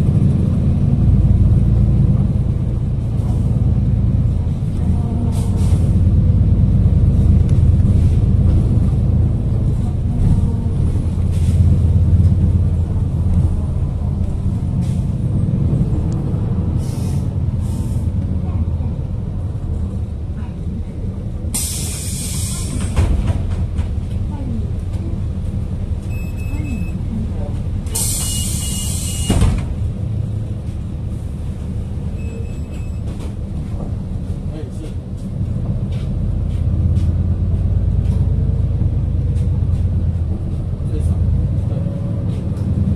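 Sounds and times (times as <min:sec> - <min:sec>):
bus engine and road rumble: 0:00.0 - 0:42.9
short air hisses: 0:16.8 - 0:18.1, 0:21.6 - 0:22.9, 0:28.0 - 0:29.4
bus door thump: 0:22.4 - 0:24.0, 0:27.9 - 0:29.9.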